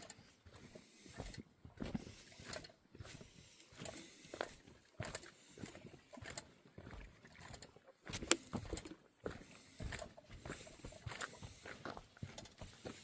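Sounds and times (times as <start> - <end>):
footsteps on dirt trail: 0.0 - 13.0.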